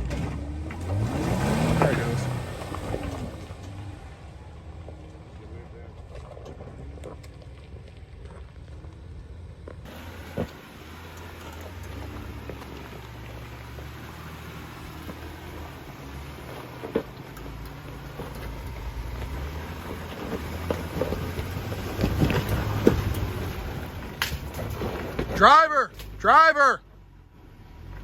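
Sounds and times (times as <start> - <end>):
engine running at low revs: 0.0 - 28.0
rain pattering: 6.8 - 25.1.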